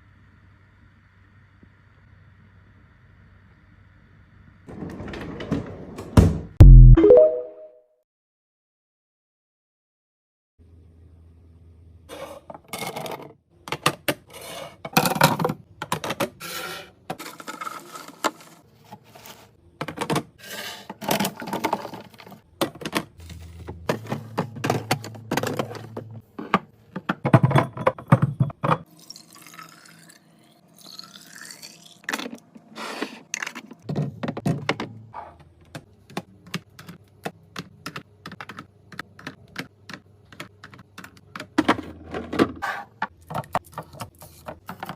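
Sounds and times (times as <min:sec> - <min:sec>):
food containers clicking and knocking: 0:12.5 - 0:16.4, 0:19.8 - 0:28.9, 0:33.4 - 0:44.9.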